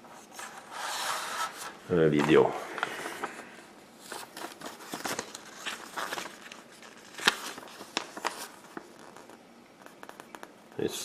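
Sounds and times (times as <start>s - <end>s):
paper pages rustling: 0.1s - 10.5s.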